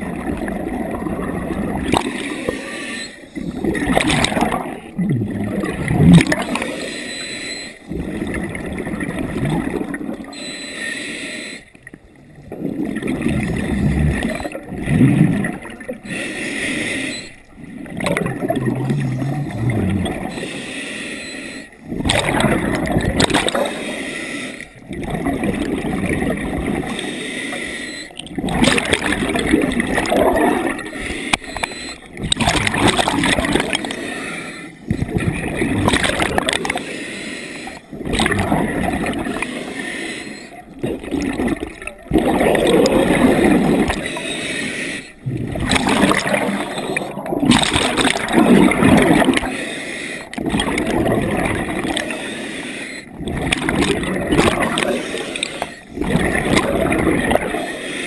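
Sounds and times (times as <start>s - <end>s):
bubbling exhalations: 0.0s - 6.9s, 12.2s - 16.2s, 17.6s - 20.4s, 21.9s - 23.9s, 28.2s - 36.9s, 37.7s - 39.8s, 40.6s - 44.3s, 45.1s - 49.5s, 50.3s - 52.2s, 53.1s - 57.7s
scuba regulator breathing underwater: 1.9s - 4.8s, 6.2s - 8.4s, 10.3s - 11.8s, 15.9s - 22.0s, 23.4s - 24.8s, 26.4s - 29.6s, 30.5s - 32.3s, 33.2s - 47.3s, 47.9s - 50.6s, 51.6s - 58.0s.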